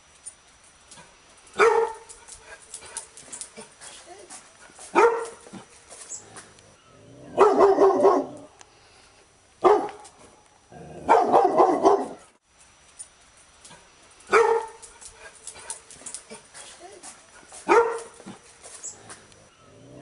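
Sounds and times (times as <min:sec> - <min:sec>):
dog barking: 0:01.6 - 0:02.1, 0:04.9 - 0:05.6, 0:07.4 - 0:08.5, 0:09.6 - 0:10.0, 0:11.0 - 0:12.3, 0:14.3 - 0:14.8, 0:17.6 - 0:18.4.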